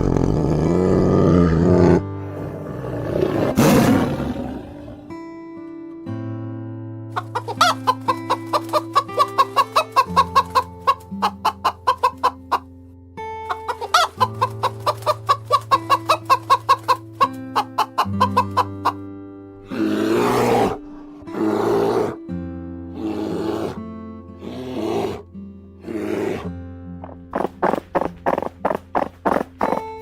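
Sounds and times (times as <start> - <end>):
soft background music: 1.2 - 30.0
rough animal calls: 7.2 - 12.6, 13.5 - 19.0, 19.6 - 22.2, 25.8 - 30.0
hen clucking: 7.2 - 12.7, 13.5 - 19.0, 27.0 - 30.0.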